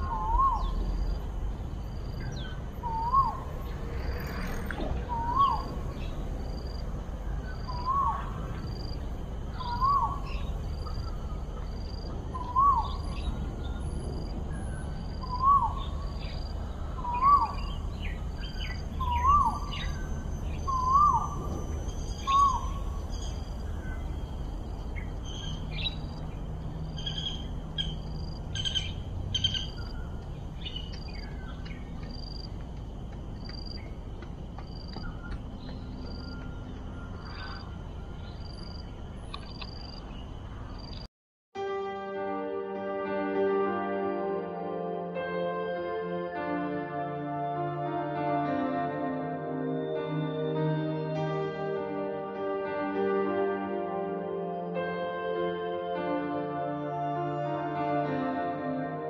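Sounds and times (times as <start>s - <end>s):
bird chirps: 0.0s - 32.6s, 34.6s - 41.1s.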